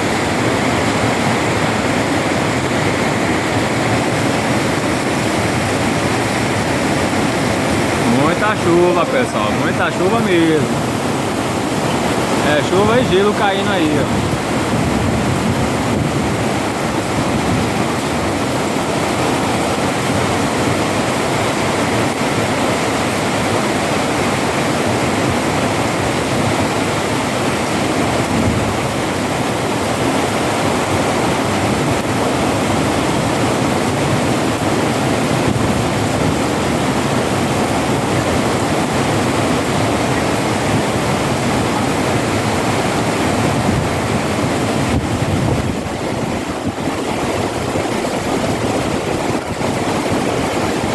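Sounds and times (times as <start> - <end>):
heavy rain with hail: 0.0 - 50.9.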